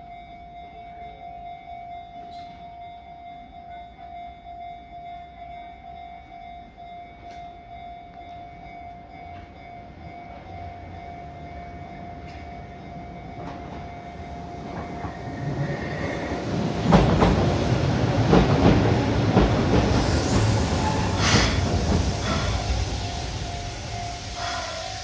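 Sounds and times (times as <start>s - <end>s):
train wheels knocking over rail joints: 16.6s - 22.7s
air brakes hissing: 19.8s - 25.0s.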